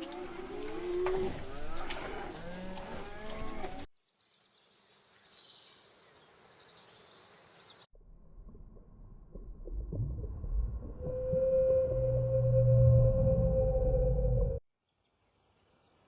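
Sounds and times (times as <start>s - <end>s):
cattle mooing: 0.0s - 3.8s.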